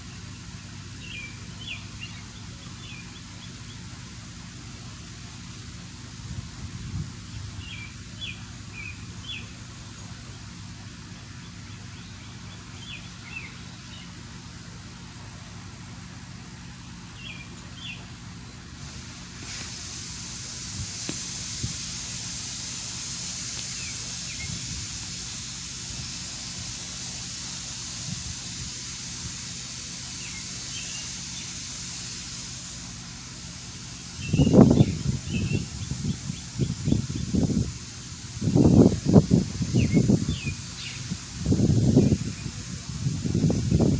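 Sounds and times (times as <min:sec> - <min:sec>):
low machinery hum: 0:00.0 - 0:43.9
steady high hiss: 0:00.0 - 0:43.9
small birds chirping: 0:00.4 - 0:04.1, 0:07.3 - 0:14.4, 0:17.1 - 0:18.7, 0:21.0 - 0:32.8, 0:33.6 - 0:37.7, 0:38.5 - 0:42.6.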